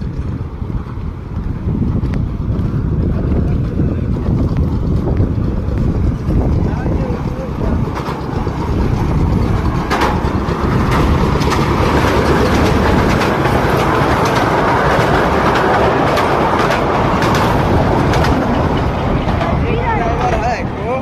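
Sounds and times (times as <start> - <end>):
vehicle rumbling: 0.0 - 21.0
clicks and rattles: 7.2 - 19.6.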